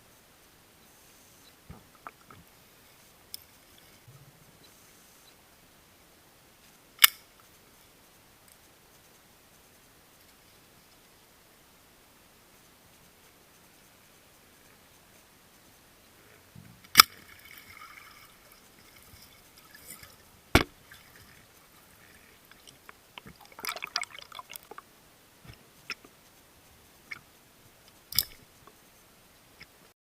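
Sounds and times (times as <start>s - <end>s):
underwater gurgling: 17.0s - 24.9s
sharp clicks and knocks: 19.8s - 21.4s, 27.8s - 28.8s.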